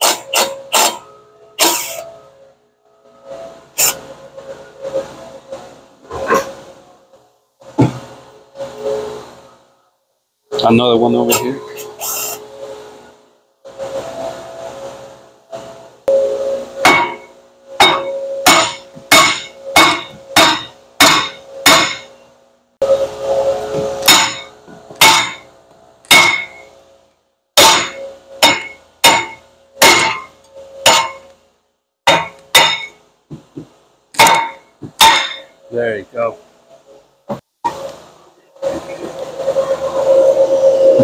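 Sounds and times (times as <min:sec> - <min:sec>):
hammer striking metal: 0:00.0 - 0:01.0, 0:16.8 - 0:22.2, 0:23.8 - 0:26.7, 0:27.6 - 0:31.3, 0:32.1 - 0:33.0, 0:34.2 - 0:35.6.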